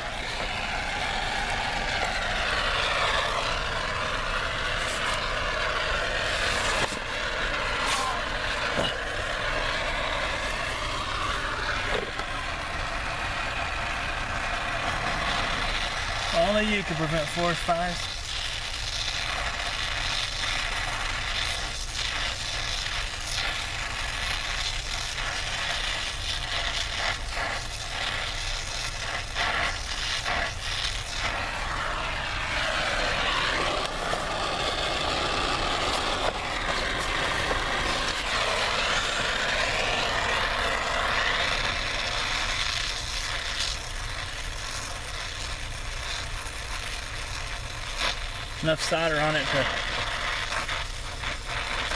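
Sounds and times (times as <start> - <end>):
low hum: 0.0 - 16.2, 30.7 - 42.7
torch flame hissing: 0.0 - 51.9.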